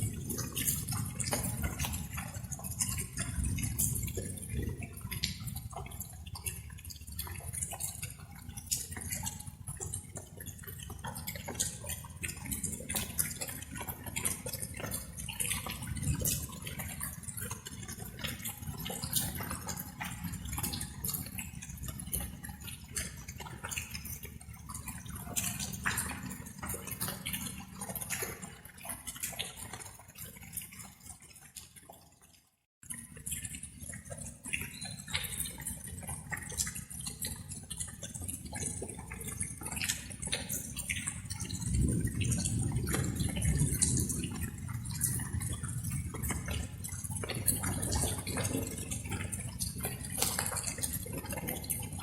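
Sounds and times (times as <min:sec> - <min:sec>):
raindrops pattering and dripping: 0:00.0 - 0:52.0.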